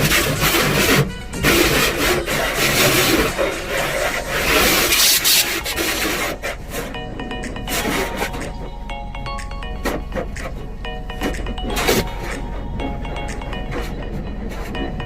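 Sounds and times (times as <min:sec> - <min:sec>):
rough rubbing and scraping: 0:00.0 - 0:07.0
background music with steady tones: 0:00.0 - 0:15.0.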